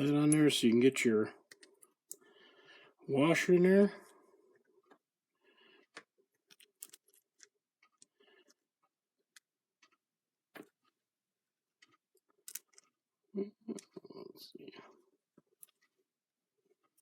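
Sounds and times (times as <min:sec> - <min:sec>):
small metal parts clicking and tapping: 0:05.8 - 0:10.9, 0:11.8 - 0:13.0.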